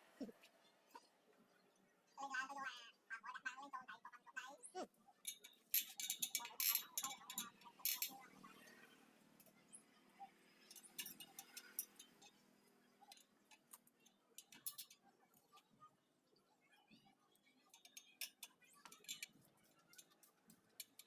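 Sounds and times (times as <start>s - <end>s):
metal clicks and clinks on wheel: 5.2s - 8.3s, 10.6s - 15.0s, 17.8s - 20.2s.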